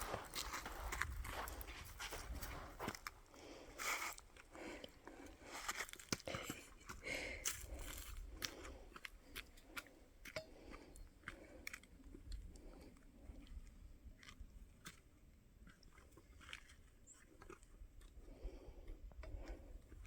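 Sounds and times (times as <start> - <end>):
gravel crunching: 0.0 - 15.0.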